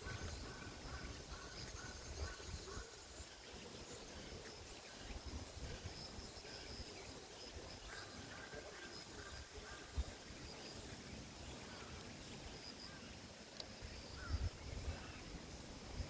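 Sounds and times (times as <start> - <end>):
wind rumble on microphone: 0.0 - 2.9, 13.8 - 16.0.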